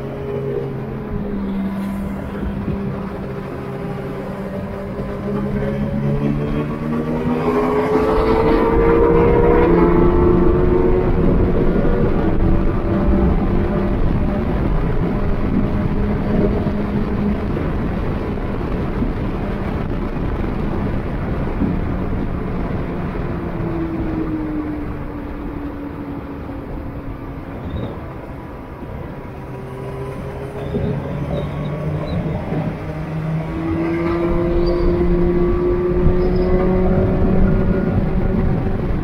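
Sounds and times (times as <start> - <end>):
road and wind noise: 0.0 - 39.0.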